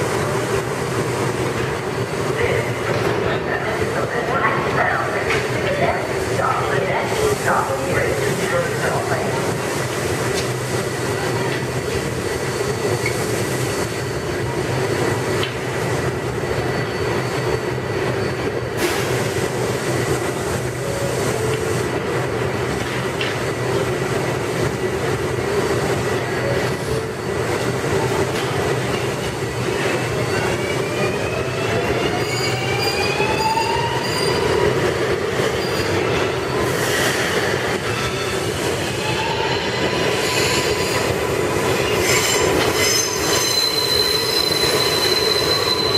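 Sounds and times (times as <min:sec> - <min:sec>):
subway train wheels rumbling: 0:00.0 - 0:45.9
high wheel squeal: 0:32.0 - 0:34.8, 0:35.5 - 0:36.8, 0:41.8 - 0:45.9.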